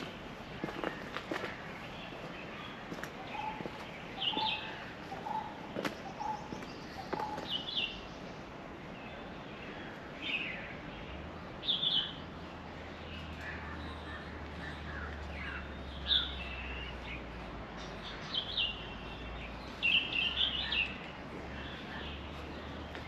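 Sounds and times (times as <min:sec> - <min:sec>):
high chirpy bird calls: 0:00.0 - 0:08.4, 0:13.0 - 0:23.0
faint outdoor hiss: 0:00.0 - 0:23.0
low piping bird call: 0:02.0 - 0:08.0.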